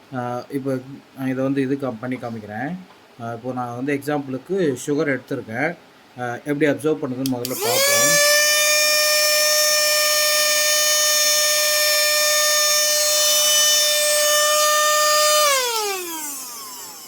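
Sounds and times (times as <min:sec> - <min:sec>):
mini vacuum cleaner whining: 0:07.4 - 0:17.0.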